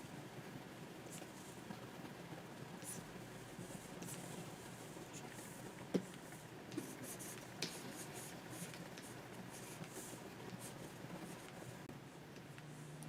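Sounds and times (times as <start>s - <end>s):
stylus scratching on drawing tablet: 2.8s - 11.9s.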